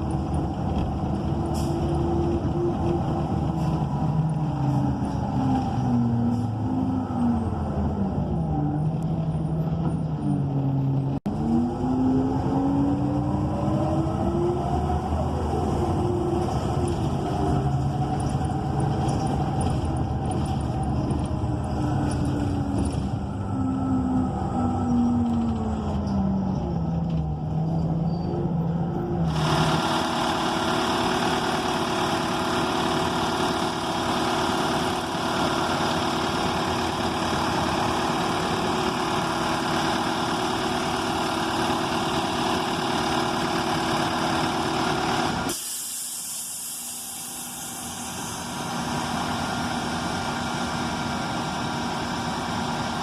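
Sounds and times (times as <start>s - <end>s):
bus engine drone with whine: 0.0s - 53.0s
brief hiss: 45.5s - 48.5s.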